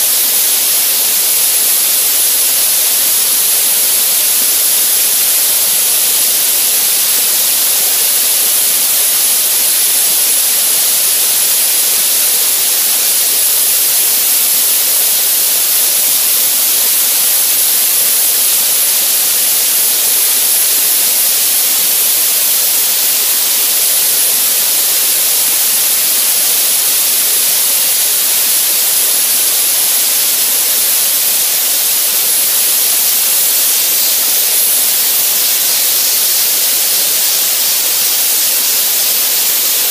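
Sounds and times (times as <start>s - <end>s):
air blaster nozzle hissing: 0.0s - 39.9s.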